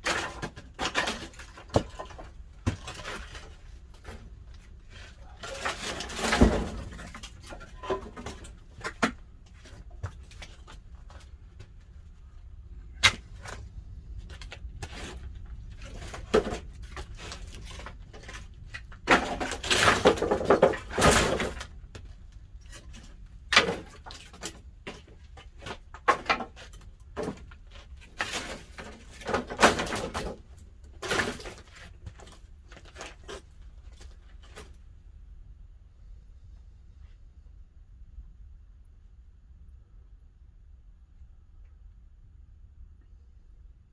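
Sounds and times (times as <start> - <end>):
wood cracks and knocks: 0.0 - 11.8, 12.9 - 34.8.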